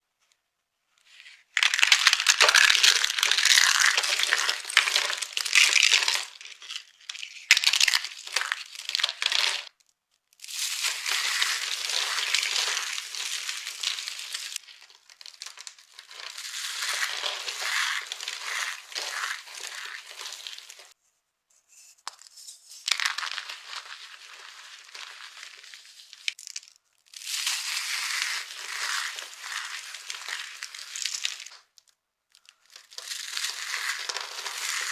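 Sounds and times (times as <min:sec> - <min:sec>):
dry soap crunching: 0:01.1 - 0:21.0, 0:22.8 - 0:34.9.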